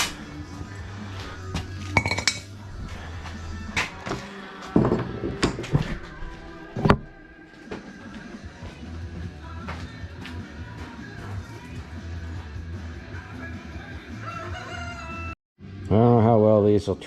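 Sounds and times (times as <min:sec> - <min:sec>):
background music: 0:00.0 - 0:17.0
metallic clinks and knocks: 0:02.0 - 0:02.5.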